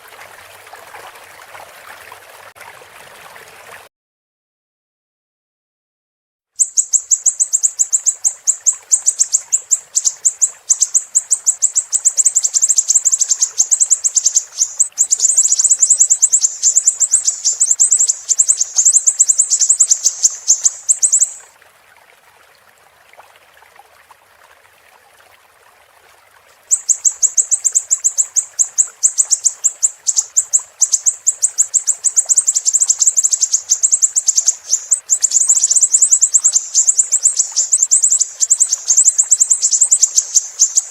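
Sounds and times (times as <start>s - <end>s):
running water hiss: 0.0s - 3.8s, 6.6s - 25.5s, 26.3s - 40.9s
bird trilling: 6.6s - 21.4s, 26.7s - 40.9s.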